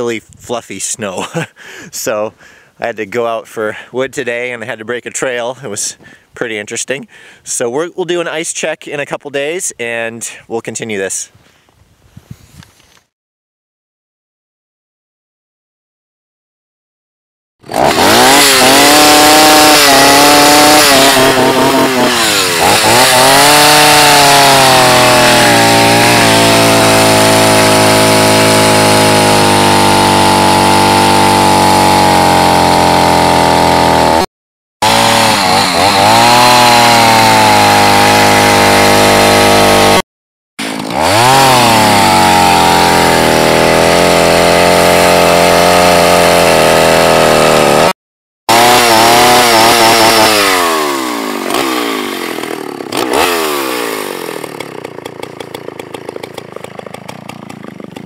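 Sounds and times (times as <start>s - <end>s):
small gasoline engine running: 17.6s - 34.2s, 34.8s - 40.0s, 40.6s - 47.9s, 48.5s - 58.0s.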